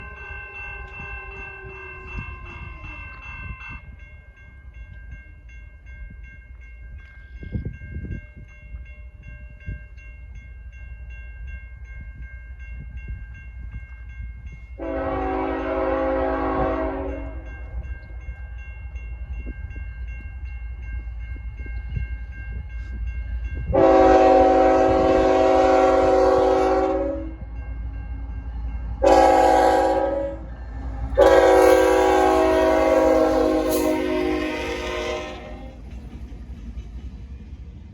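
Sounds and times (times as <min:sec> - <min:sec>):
train rumbling: 0:00.0 - 0:37.9
train horn chord blasts: 0:14.8 - 0:17.6, 0:23.7 - 0:27.5, 0:29.0 - 0:30.5, 0:31.2 - 0:35.8.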